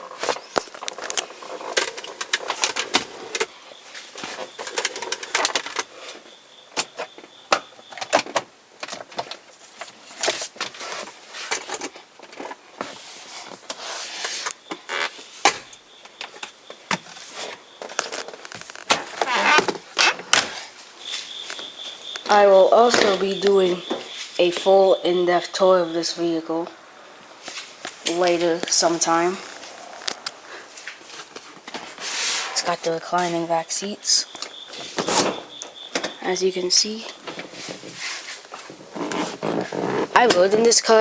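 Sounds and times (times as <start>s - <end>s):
faint high steady tone: 20.4s - 29.5s, 32.4s - 37.5s.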